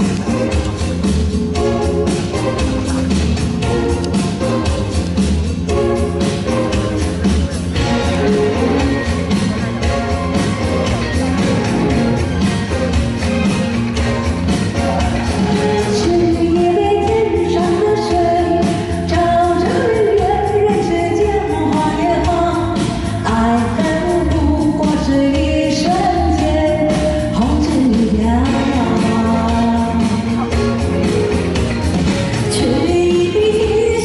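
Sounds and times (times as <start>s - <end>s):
rock band with drums and guitar: 0.0s - 34.0s
person singing: 5.7s - 30.8s.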